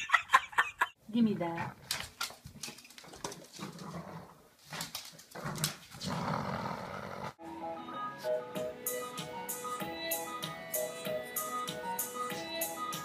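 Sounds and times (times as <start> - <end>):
music: 7.4 - 13.0.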